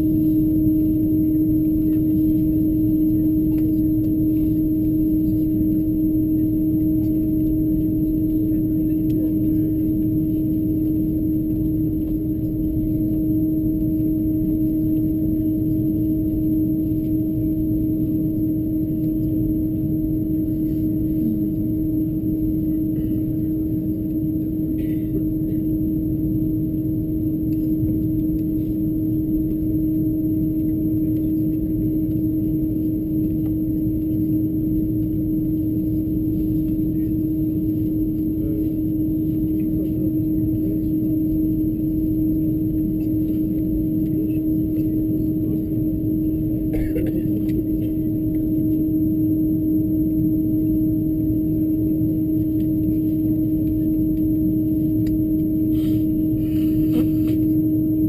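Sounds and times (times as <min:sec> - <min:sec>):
aircraft engines idling: 0:00.0 - 0:48.8, 0:50.9 - 0:57.6
constant cabin hum: 0:00.0 - 0:58.0.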